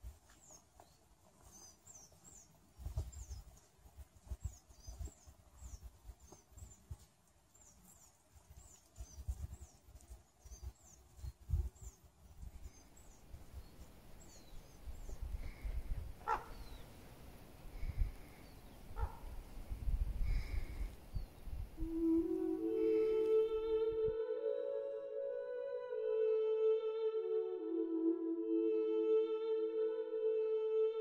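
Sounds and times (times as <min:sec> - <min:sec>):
small birds chirping: 0:00.0 - 0:21.8.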